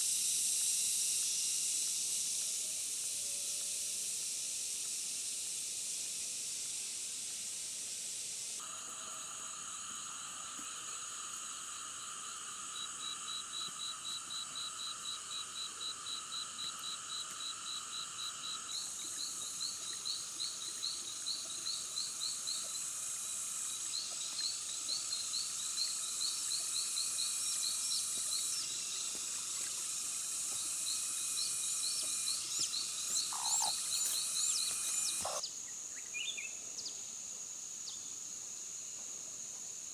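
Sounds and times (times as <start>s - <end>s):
insects buzzing: 0.0s - 39.9s
rapid repeated chirping call: 23.7s - 35.5s
short bird chirps: 32.4s - 35.4s.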